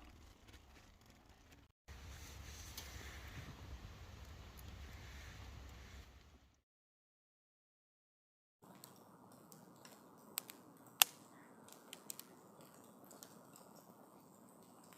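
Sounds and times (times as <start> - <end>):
faint outdoor background: 0.0 - 6.6, 8.6 - 14.9
sharp snaps: 8.8 - 13.8.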